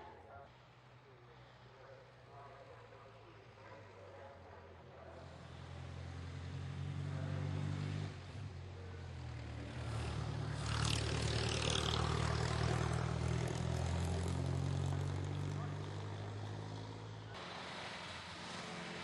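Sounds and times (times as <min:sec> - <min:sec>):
racing car engine pulling hard: 0:05.2 - 0:19.0.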